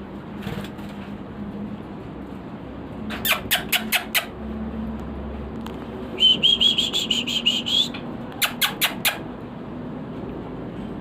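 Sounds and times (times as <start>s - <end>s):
bird calling: 6.2s - 9.3s.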